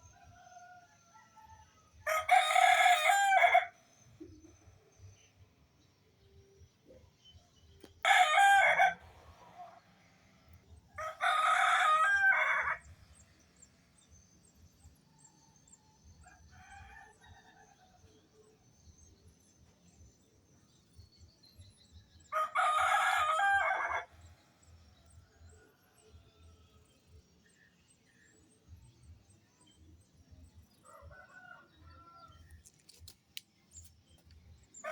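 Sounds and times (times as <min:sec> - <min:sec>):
rooster crowing: 0:00.4 - 0:03.8, 0:08.0 - 0:09.8, 0:11.0 - 0:12.8, 0:22.3 - 0:24.1, 0:30.8 - 0:32.4.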